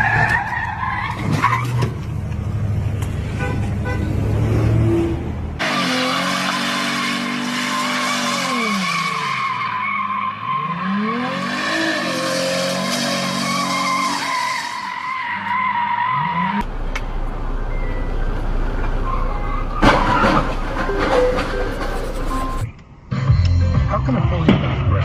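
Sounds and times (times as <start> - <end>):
car tyres squealing: 0.0 - 2.1, 5.6 - 16.7, 17.7 - 22.7.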